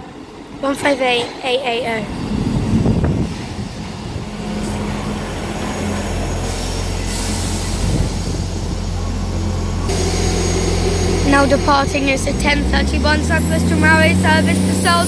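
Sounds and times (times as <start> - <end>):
diesel train engines droning: 0.0 - 15.0
air hiss: 2.8 - 12.3.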